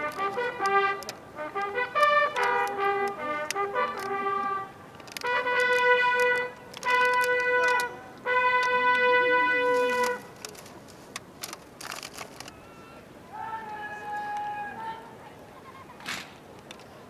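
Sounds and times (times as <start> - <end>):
trumpet call: 0.0 - 10.3.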